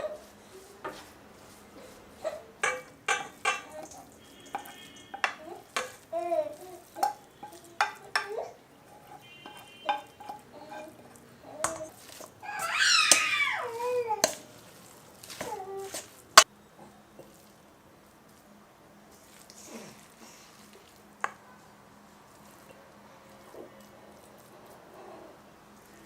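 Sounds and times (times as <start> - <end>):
utensils clinking and scraping pan: 0.0 - 16.5.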